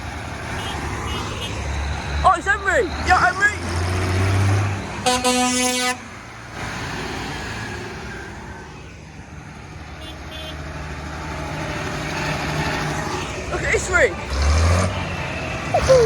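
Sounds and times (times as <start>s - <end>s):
tractor engines running: 0.0s - 16.0s
vehicle horn toot: 0.6s - 1.6s, 5.0s - 6.1s, 10.0s - 10.6s.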